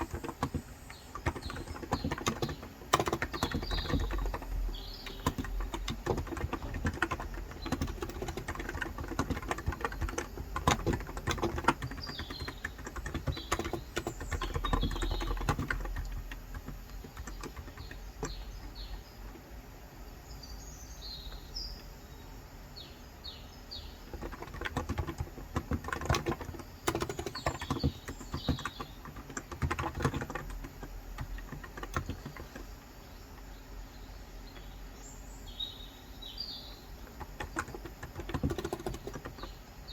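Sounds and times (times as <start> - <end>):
small birds chirping: 0.0 - 39.9
keyboard key clicks: 1.2 - 18.8, 24.1 - 32.6, 37.1 - 39.5.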